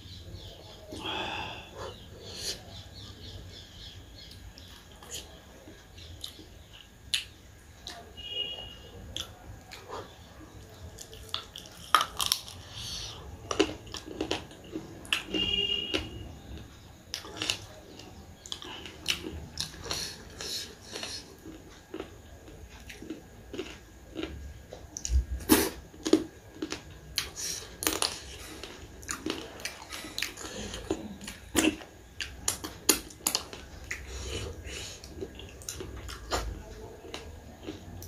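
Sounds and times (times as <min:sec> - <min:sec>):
person chewing food: 0:00.4 - 0:08.3, 0:09.1 - 0:38.0.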